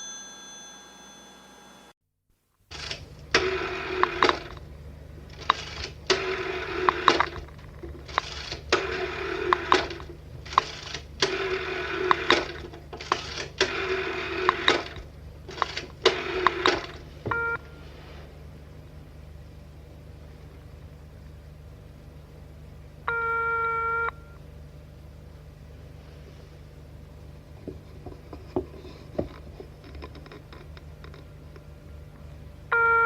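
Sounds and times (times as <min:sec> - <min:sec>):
telephone bell ringing: 0:00.0 - 0:01.9, 0:23.1 - 0:24.4, 0:32.7 - 0:33.0
steady low hum: 0:02.7 - 0:33.0.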